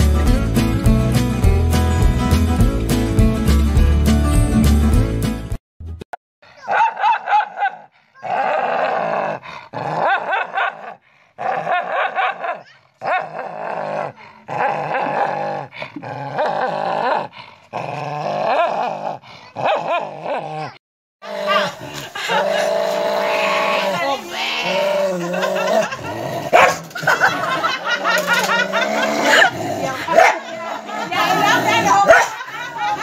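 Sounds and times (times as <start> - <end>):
dog snarling and growling: 7.8 - 32.5.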